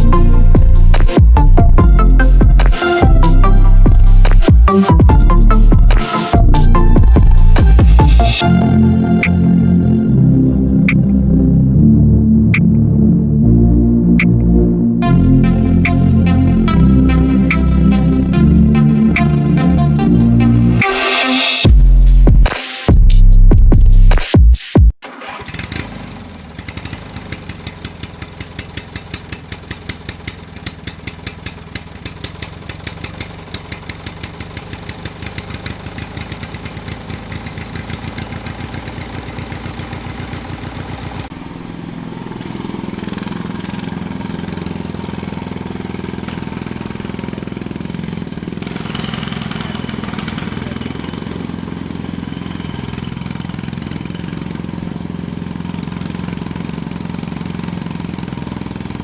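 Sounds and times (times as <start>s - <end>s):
motor chugging: 0.0s - 10.0s, 25.2s - 59.0s.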